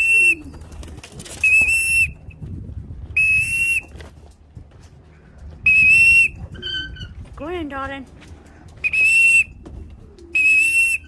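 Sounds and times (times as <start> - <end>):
high whistle blasts: 1.4 - 2.2, 3.2 - 3.9, 5.7 - 6.4, 8.8 - 9.6, 10.4 - 11.0.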